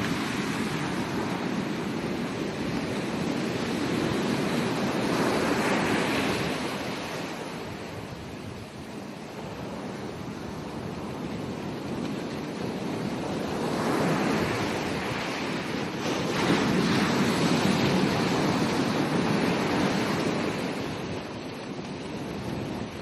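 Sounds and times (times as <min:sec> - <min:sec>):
ocean waves breaking: 0:00.0 - 0:23.0
wind on microphone: 0:00.0 - 0:23.0.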